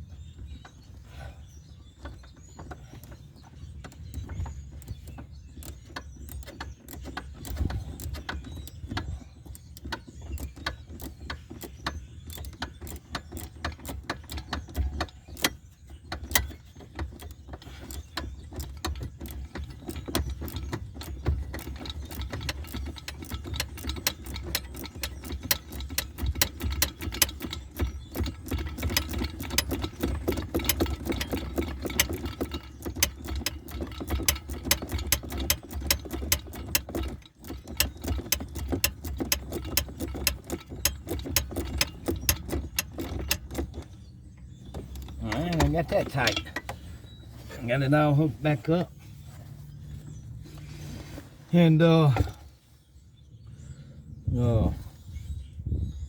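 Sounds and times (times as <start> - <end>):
ratchet wrench clicking: 16.2 - 43.9.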